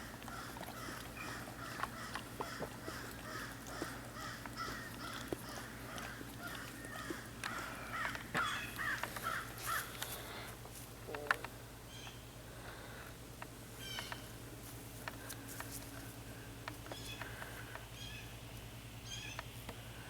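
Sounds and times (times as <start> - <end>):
animal calling: 0.0 - 10.0
steady low hum: 0.0 - 20.0.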